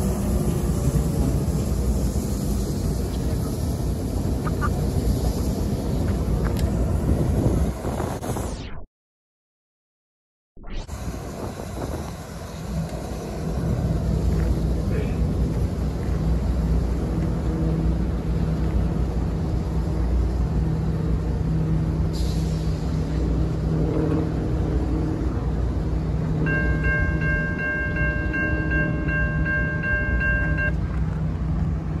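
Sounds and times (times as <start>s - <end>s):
diesel locomotives rumbling: 0.0s - 8.5s, 10.9s - 32.0s
crossing bell ringing: 26.4s - 30.8s.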